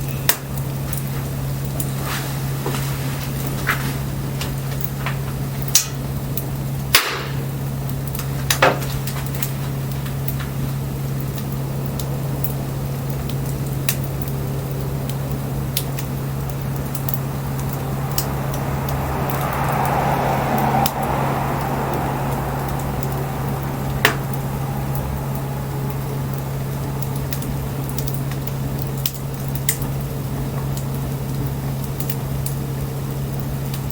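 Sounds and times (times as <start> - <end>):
firewood crackling and popping: 0.0 - 33.9
low drone: 10.8 - 33.9
soft hiss: 14.9 - 29.5.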